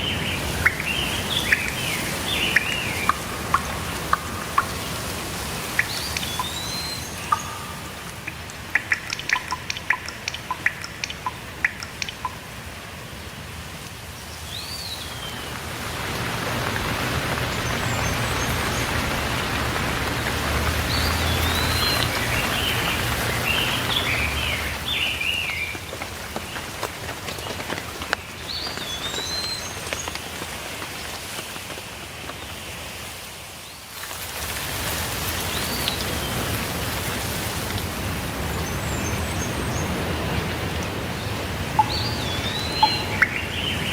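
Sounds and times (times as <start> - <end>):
birds chirping: 0.0 - 12.5, 14.3 - 30.2, 38.4 - 43.9
water drips: 0.0 - 13.1, 13.7 - 32.4, 33.9 - 43.9
steady rainfall: 0.0 - 43.9.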